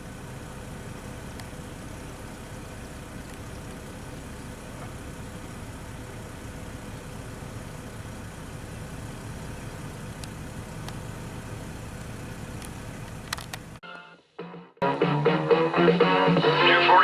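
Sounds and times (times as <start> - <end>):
low engine hum: 0.0 - 13.8
faint clicks: 1.3 - 1.6, 10.1 - 11.1, 12.0 - 13.8.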